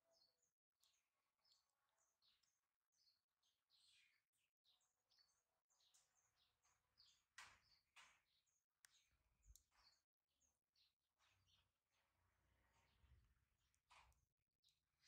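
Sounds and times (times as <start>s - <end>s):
faint bird chirps: 0.0s - 11.7s.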